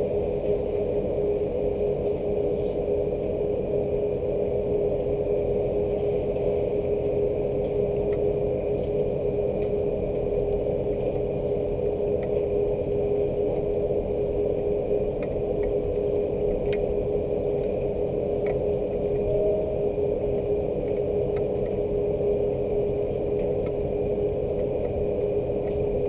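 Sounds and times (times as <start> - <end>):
low mechanical hum: 0.0 - 26.0
faint light ticks: 5.9 - 12.5, 15.1 - 15.8, 16.4 - 19.3, 20.8 - 26.0.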